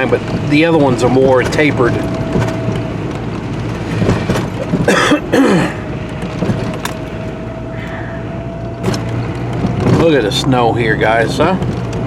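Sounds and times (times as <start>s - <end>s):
truck engine and tyres rumbling: 0.0s - 12.0s
faint steady whine: 5.6s - 9.4s.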